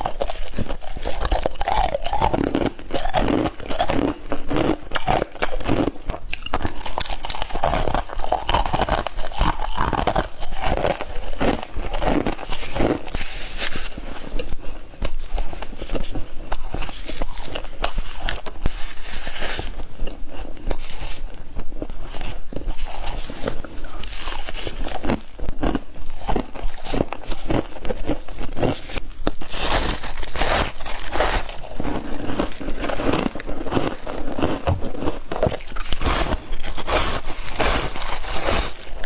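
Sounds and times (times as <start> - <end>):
frost being chewed: 0.0 - 39.0.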